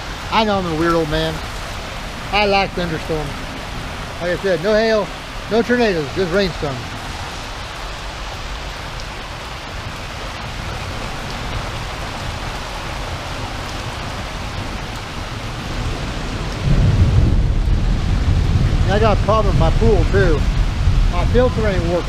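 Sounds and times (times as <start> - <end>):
rain pouring: 0.0 - 22.0
low rumble: 15.8 - 22.0.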